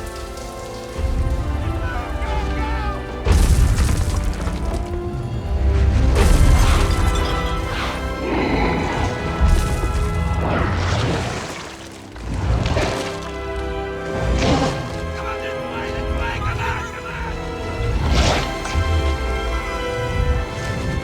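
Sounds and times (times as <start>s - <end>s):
heavy crashes and booms: 0.0s - 11.5s
film score music: 0.0s - 21.0s.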